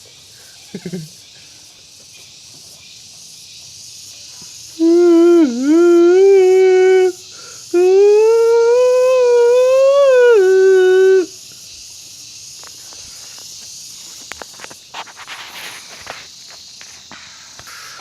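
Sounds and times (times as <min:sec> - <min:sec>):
faint steady hiss: 0:00.0 - 0:18.0
person humming: 0:04.8 - 0:11.4.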